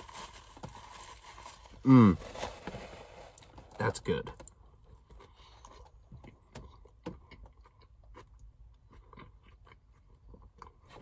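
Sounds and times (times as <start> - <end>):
person chewing food: 4.5 - 11.0.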